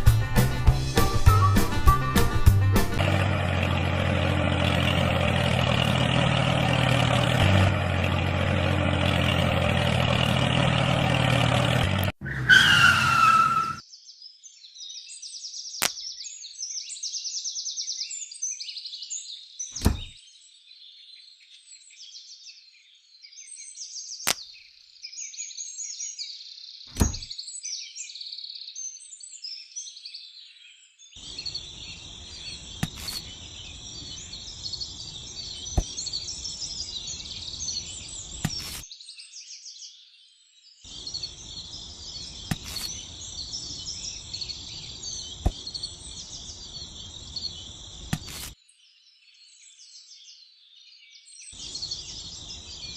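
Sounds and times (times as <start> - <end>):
birds and insects chirping: 3.0 - 52.9
sharp knocks: 27.0 - 27.3.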